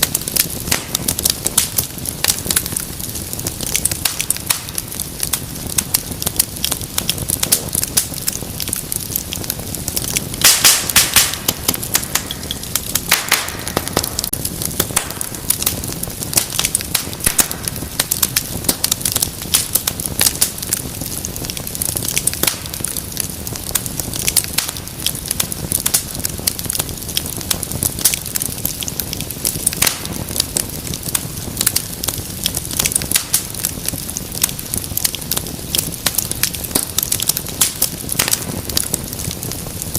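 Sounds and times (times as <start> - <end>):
low rush of flame: 0.0 - 39.9
wood fire crackling: 0.0 - 39.9
sharp pops: 10.0 - 18.8.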